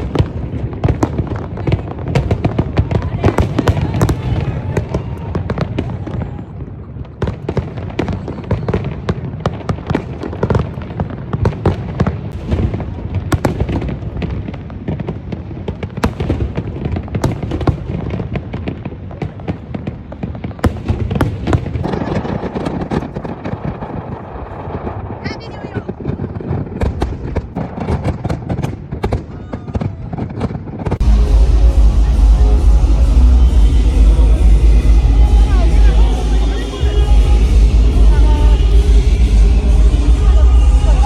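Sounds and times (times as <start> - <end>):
fireworks booming and crackling: 0.0 - 41.0
low rumble: 31.0 - 41.0.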